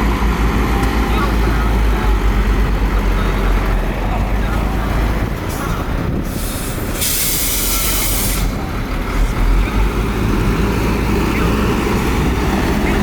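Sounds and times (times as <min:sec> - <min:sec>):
heavy diesel machinery rumbling: 0:00.0 - 0:13.0
air brakes hissing: 0:05.6 - 0:08.7.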